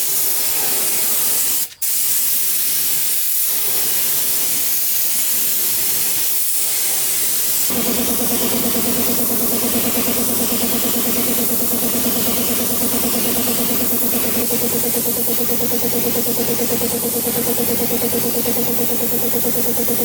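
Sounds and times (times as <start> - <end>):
spraying hiss: 0.0 - 20.0
motor humming: 7.7 - 20.0.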